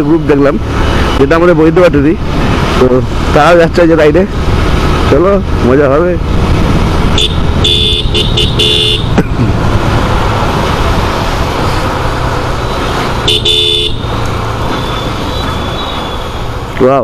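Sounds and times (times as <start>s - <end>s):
motorcycle engines rumbling: 0.0s - 17.0s
road noise: 0.0s - 17.0s
vehicle horn honking: 7.1s - 9.2s, 12.6s - 14.1s.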